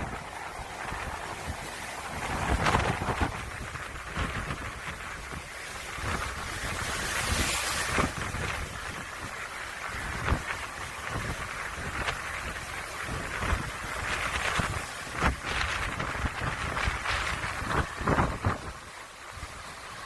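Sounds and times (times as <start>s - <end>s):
gale buffeting microphone: 0.0s - 20.0s.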